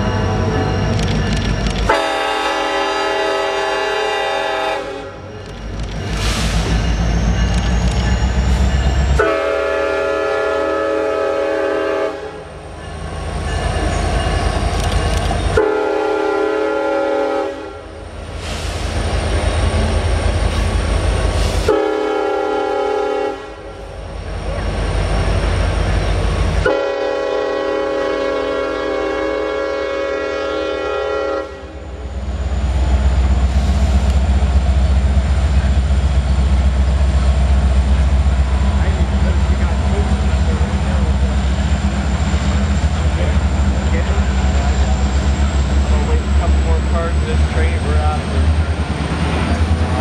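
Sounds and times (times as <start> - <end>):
locomotive engine rumble: 0.0 - 22.9, 23.6 - 50.0
locomotive air horn blasts: 1.8 - 5.2, 9.2 - 12.5, 15.5 - 17.9, 21.5 - 23.9, 26.6 - 31.8.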